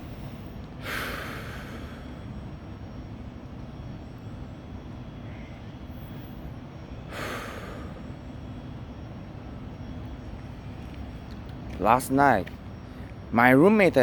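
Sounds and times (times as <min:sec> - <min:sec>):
steady low rumble: 0:00.0 - 0:14.0
breath close to microphone: 0:00.8 - 0:02.4.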